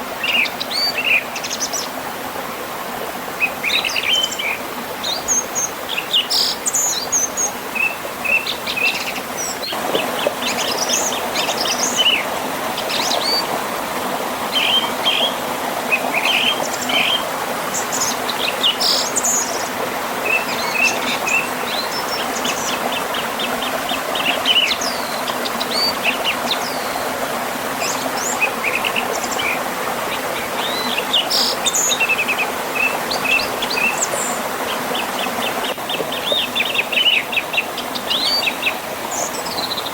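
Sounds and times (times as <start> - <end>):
birds chirping and trilling: 14.5 - 27.0, 27.8 - 39.9.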